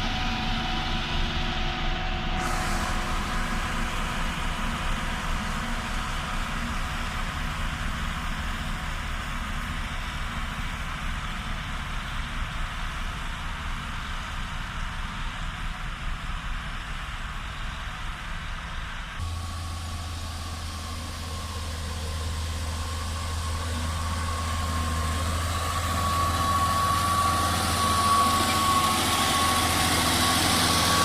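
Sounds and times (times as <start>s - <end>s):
heavy diesel engines running: 0.0s - 31.0s.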